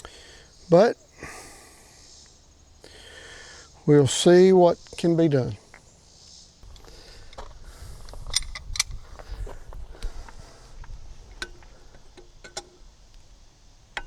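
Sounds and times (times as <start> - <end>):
sharp metallic clicks: 6.6 - 9.2
low rumbling handling noise: 6.6 - 14.0.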